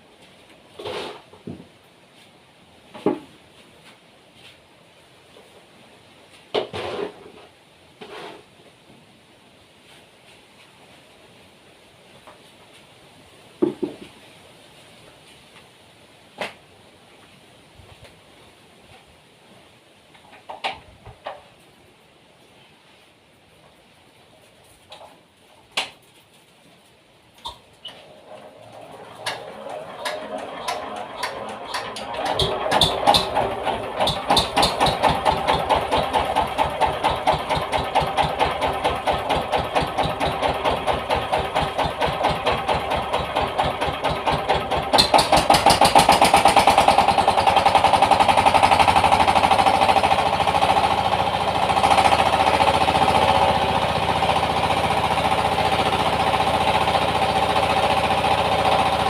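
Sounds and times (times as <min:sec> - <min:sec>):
diesel engine starting and chugging: 0:28.0 - 0:59.0.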